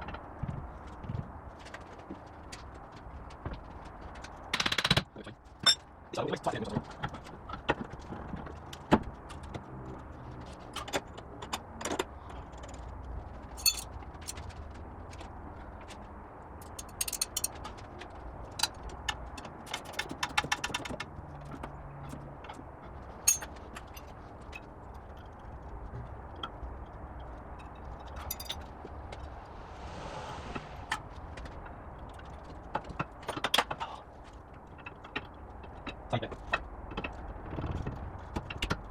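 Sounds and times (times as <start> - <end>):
rattling clatter: 13.5 - 14.4
metallic clinks of tools: 13.6 - 13.9, 16.7 - 17.5, 23.3 - 23.5, 28.2 - 28.6.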